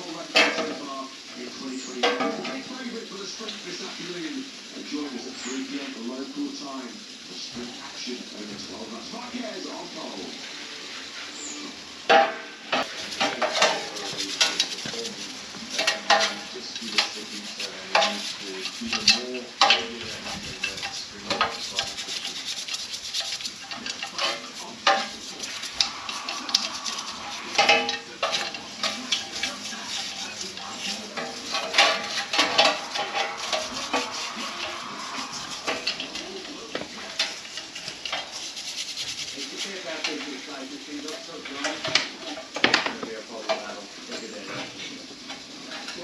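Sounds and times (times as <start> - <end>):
metal tools clinking: 12.8 - 38.6.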